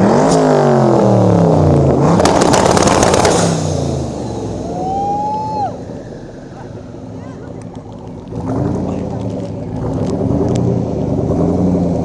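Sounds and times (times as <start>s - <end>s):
exhaust crackles: 0.0s - 12.0s
sports car engine revving: 0.0s - 12.0s.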